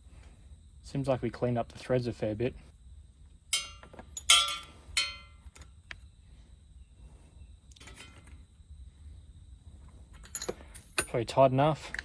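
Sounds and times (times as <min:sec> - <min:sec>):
metal tools clinking: 0:03.5 - 0:05.7, 0:07.7 - 0:08.4, 0:10.1 - 0:12.0.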